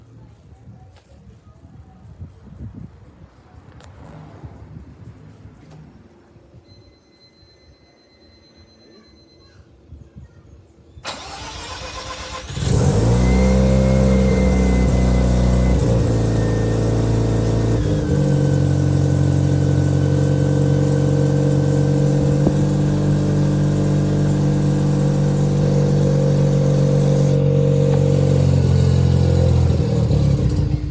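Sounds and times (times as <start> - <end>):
rotary engine cranking and idling: 11.0 - 30.9.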